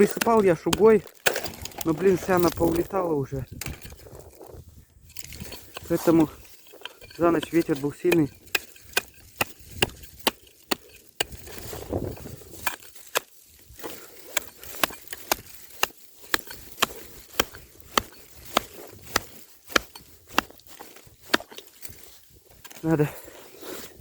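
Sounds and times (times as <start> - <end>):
hatchet chopping ice: 0.0 - 2.5, 5.7 - 11.7, 12.5 - 21.7.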